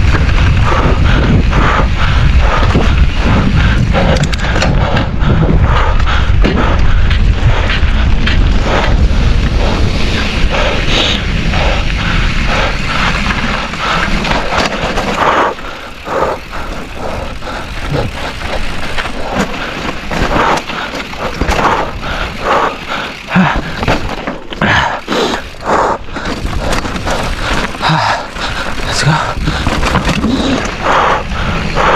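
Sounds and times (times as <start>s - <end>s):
wind buffeting microphone: 0.0s - 31.9s
bike knocks and rattles: 12.5s - 30.8s.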